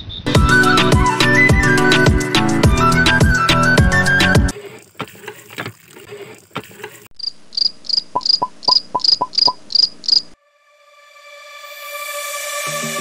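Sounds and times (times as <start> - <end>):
cricket chirping: 7.2 - 10.4.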